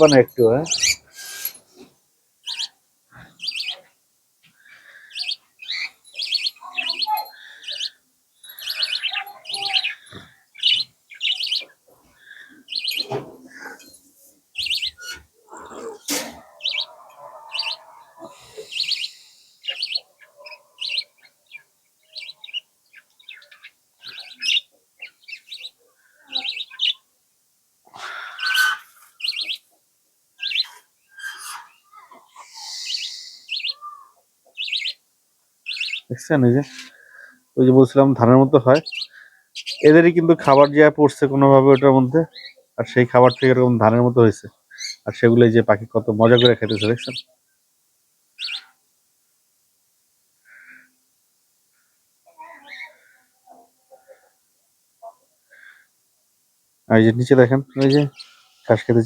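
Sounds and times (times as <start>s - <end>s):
small parrots chirping: 0.0s - 1.6s, 2.4s - 27.1s, 28.0s - 29.7s, 30.4s - 35.0s, 35.6s - 37.3s, 38.6s - 40.8s, 41.7s - 43.5s, 44.6s - 45.2s, 46.2s - 47.3s, 48.4s - 48.8s, 52.4s - 53.1s, 57.4s - 59.0s.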